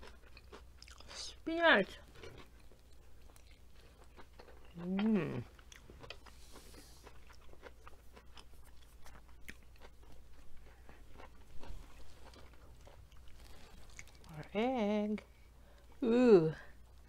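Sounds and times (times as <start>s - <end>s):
person chewing wetly: 0.0s - 1.2s, 2.0s - 14.4s.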